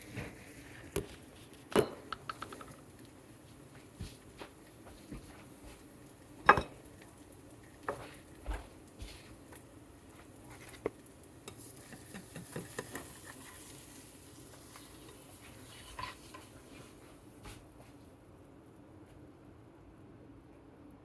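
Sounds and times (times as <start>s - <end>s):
food sizzling in frying pan: 2.3s - 17.2s
utensil scraping pan: 14.5s - 16.9s.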